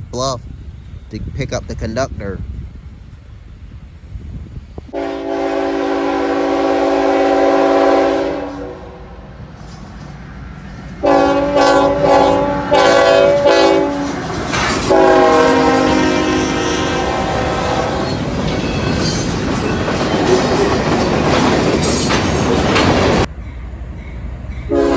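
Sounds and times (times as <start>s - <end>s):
low rumble of train: 0.0s - 24.9s
locomotive air horn blasts: 4.9s - 9.2s, 11.0s - 14.2s, 14.8s - 18.2s, 24.7s - 24.9s.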